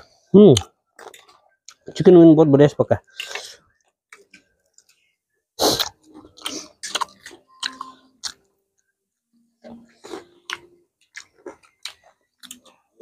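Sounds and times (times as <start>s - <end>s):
people chewing crunchy chicken: 5.6s - 8.9s, 9.9s - 13.0s.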